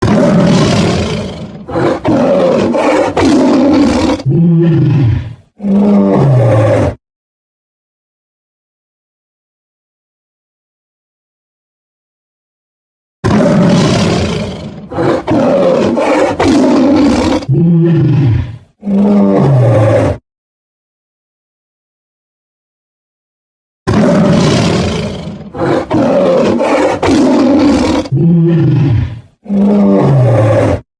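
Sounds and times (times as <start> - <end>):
big cat roaring: 0.0 - 7.0, 13.2 - 20.2, 23.9 - 30.8.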